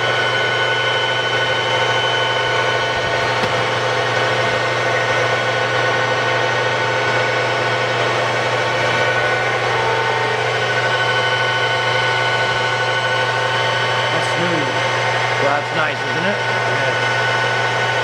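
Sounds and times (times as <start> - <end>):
steady high gearbox tones: 0.0 - 6.6
milling machine humming: 0.0 - 18.0.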